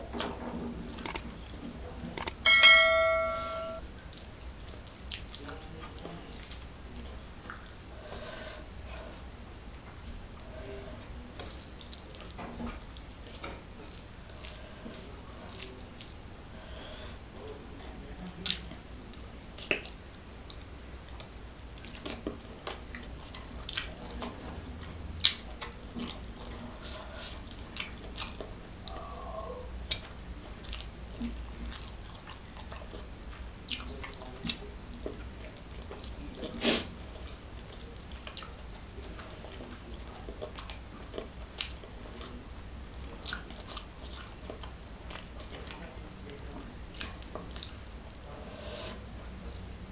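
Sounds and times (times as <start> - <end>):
chewing and wet mouth smacks: 0.9 - 2.4, 4.0 - 7.9, 11.4 - 16.2, 18.3 - 29.1, 29.8 - 48.2.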